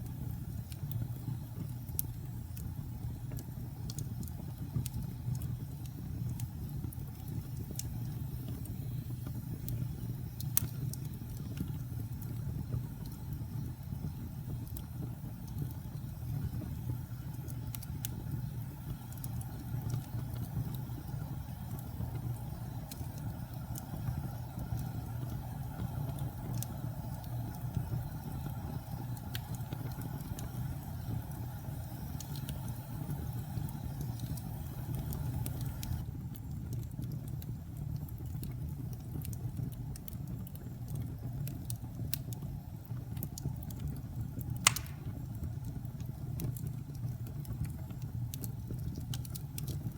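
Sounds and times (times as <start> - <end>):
wood fire crackling: 0.0 - 49.9
fire pop: 44.4 - 49.9.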